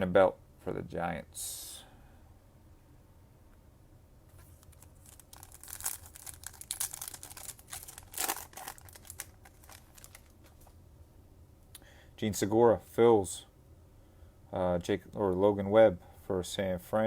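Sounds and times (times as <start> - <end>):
foil wrapper crinkling and tearing: 4.4 - 10.7.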